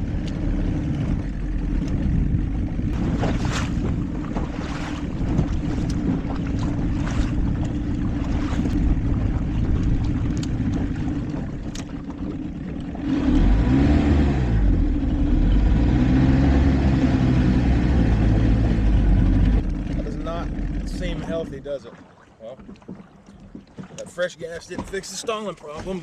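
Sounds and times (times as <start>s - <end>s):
outboard motor running: 0.0s - 26.0s
wind: 0.0s - 26.0s
water splashing: 1.1s - 13.8s, 18.7s - 26.0s.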